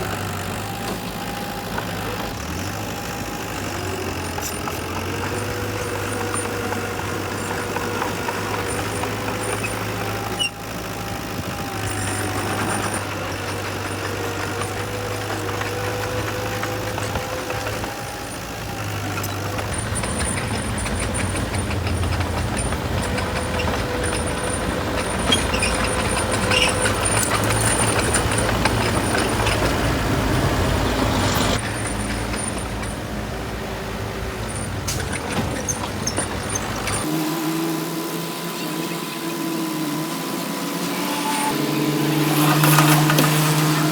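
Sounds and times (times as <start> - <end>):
heavy diesel engines running: 0.0 - 43.9.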